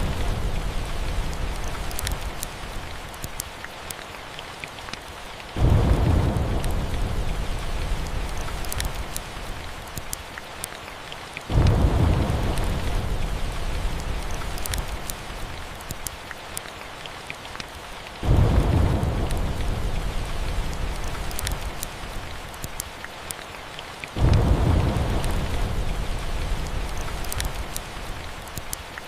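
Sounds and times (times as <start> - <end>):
thunder rumbling: 0.0 - 2.7, 5.6 - 9.8, 11.5 - 15.7, 18.2 - 22.5, 24.2 - 28.4
faint fireplace crackles: 0.0 - 4.0, 4.8 - 10.7, 11.5 - 16.7, 18.6 - 23.4, 24.0 - 29.0
steady rain: 0.0 - 29.0.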